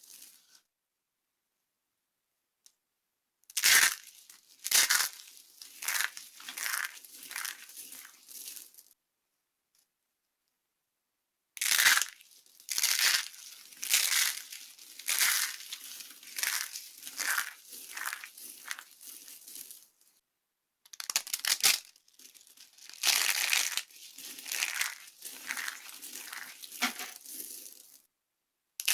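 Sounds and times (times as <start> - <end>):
dry soap crunching by hand: 3.5 - 8.8, 11.6 - 20.0, 20.9 - 28.0.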